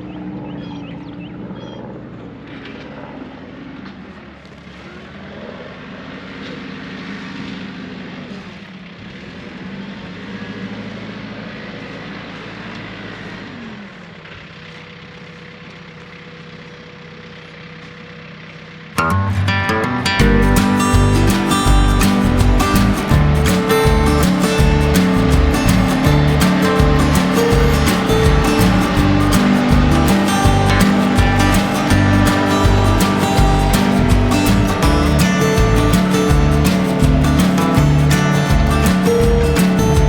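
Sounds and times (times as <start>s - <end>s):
tractor diesel engine running: 0.0s - 40.0s
guitar music: 19.0s - 40.0s.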